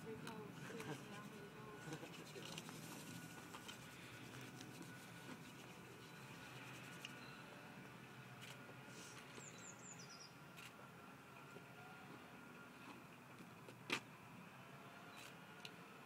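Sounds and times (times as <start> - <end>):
bird chirps: 9.3 - 10.4.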